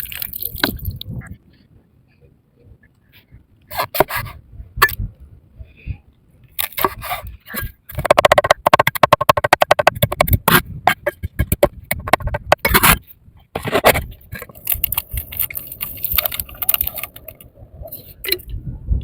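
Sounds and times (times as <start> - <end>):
sharp clicks and knocks: 6.6 - 13.0
scraping: 6.6 - 17.4.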